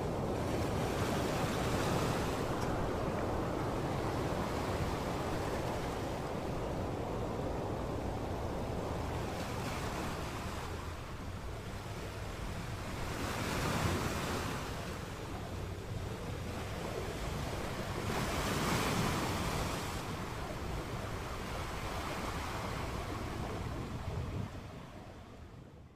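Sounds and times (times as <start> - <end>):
surf washing onto beach: 0.0 - 11.4
wind blowing: 0.0 - 25.9.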